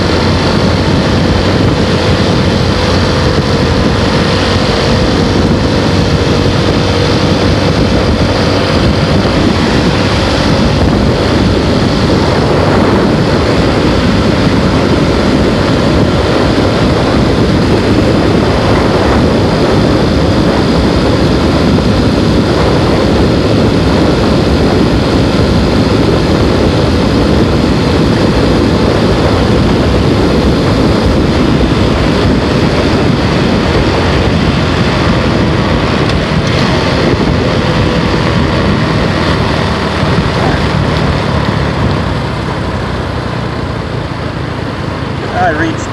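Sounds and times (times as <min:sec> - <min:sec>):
motorbike engine: 0:00.0 - 0:45.9
wind and road noise: 0:00.0 - 0:45.9.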